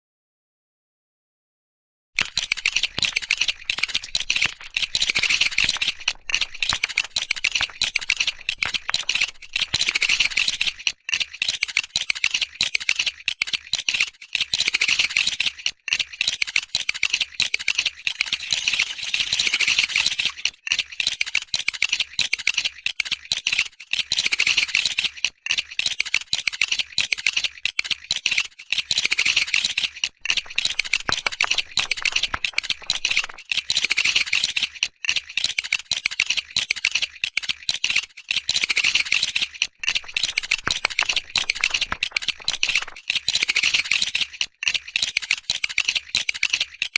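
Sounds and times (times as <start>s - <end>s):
plastic bricks clicking and rattling: 2.2s - 13.9s, 27.2s - 46.9s.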